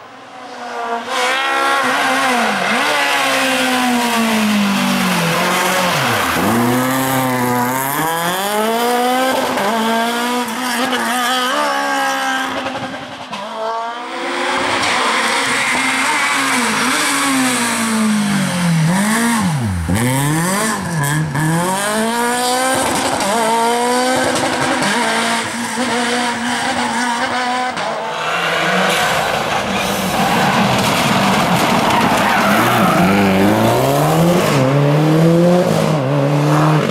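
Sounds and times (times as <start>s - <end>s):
rally car engines revving: 0.0s - 36.9s
rush of tyre noise: 0.0s - 36.9s.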